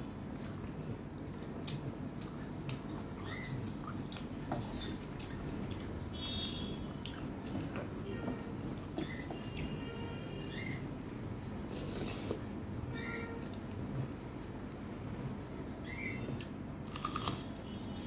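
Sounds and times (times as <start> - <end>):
wet chewing and smacking: 0.2 - 8.0.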